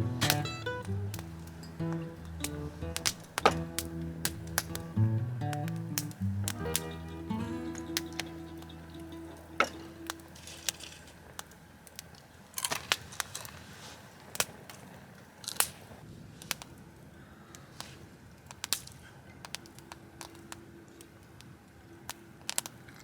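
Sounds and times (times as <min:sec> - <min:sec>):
sharp clicks and crackles: 0:00.2 - 0:06.8, 0:07.7 - 0:16.8, 0:17.5 - 0:23.0.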